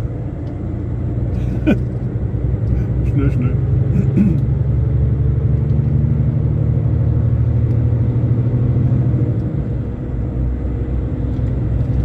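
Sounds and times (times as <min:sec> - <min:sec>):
diesel engine drone: 0:00.0 - 0:12.0
road noise: 0:00.0 - 0:12.0.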